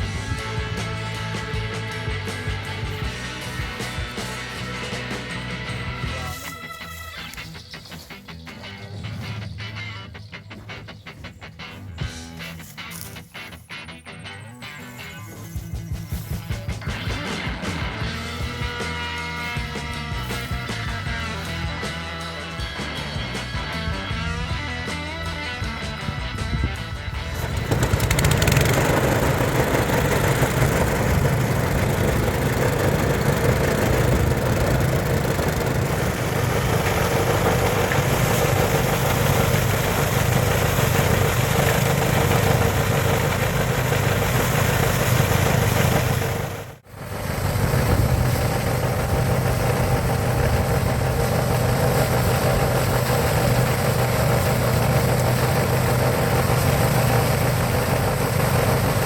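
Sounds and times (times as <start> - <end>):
thresher engine humming: 0.0 - 12.2, 26.6 - 59.0
threshing drum rushing: 27.2 - 59.0.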